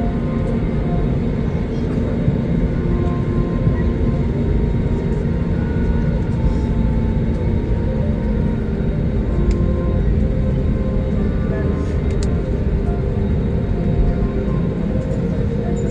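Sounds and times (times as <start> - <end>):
jet engine rumble in cabin: 0.0 - 15.9.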